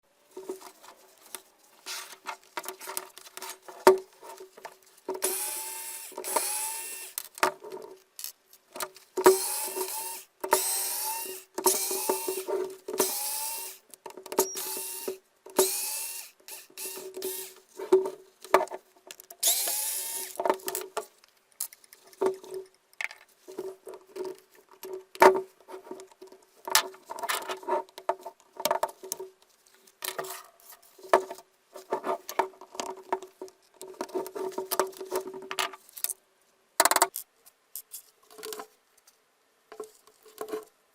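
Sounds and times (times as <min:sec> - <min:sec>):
electric drill whining: 0:05.2 - 0:07.2, 0:09.3 - 0:13.8, 0:14.4 - 0:17.6, 0:19.4 - 0:20.4.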